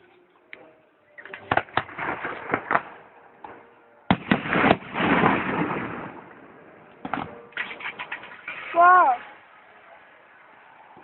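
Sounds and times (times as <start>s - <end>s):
fireworks bangs: 1.2s - 9.3s
fireworks crackling rumble: 1.2s - 11.0s.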